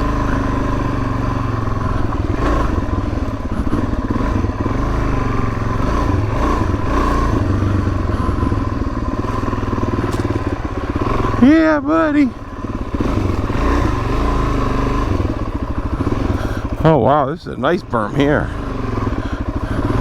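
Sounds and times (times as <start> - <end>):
motorcycle engine running: 0.0 - 20.0
bike knocking and clattering: 9.2 - 11.1.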